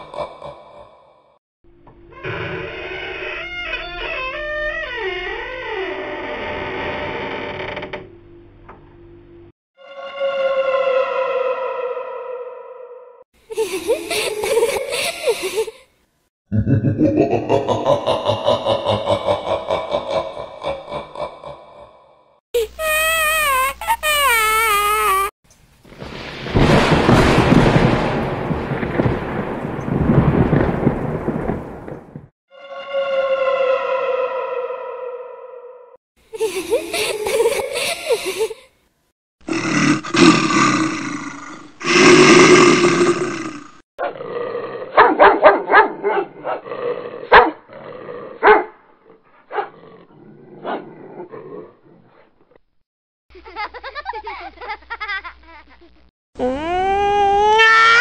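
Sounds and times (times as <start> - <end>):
thunder rumbling: 25.8 - 32.3
dog barking: 45.0 - 46.7, 47.3 - 47.6, 48.4 - 48.8, 49.5 - 49.8, 50.6 - 50.9.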